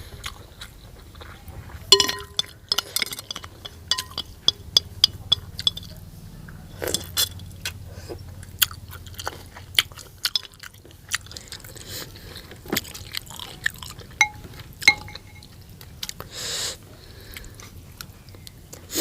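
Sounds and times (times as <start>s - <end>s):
chewing with crunches: 0.0s - 1.9s, 6.8s - 14.9s.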